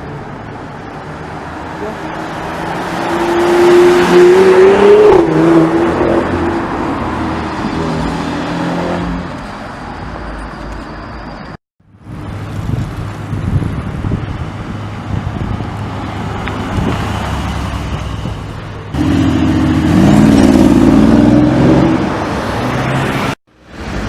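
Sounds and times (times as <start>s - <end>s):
street traffic: 0.0s - 24.0s
sports car engine accelerating: 19.0s - 22.2s.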